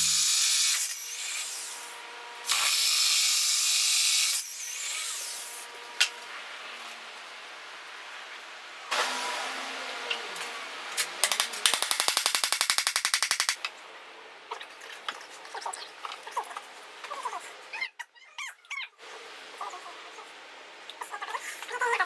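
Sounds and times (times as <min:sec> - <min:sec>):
tool whirring hiss: 0:00.0 - 0:01.6
loud rapid clicking: 0:11.2 - 0:13.6.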